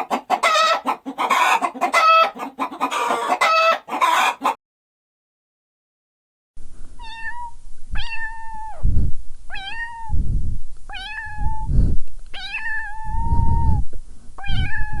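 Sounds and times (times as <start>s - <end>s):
kitten meowing: 7.0s - 8.8s, 9.5s - 10.2s, 10.9s - 11.7s, 12.4s - 13.7s, 14.4s - 15.0s.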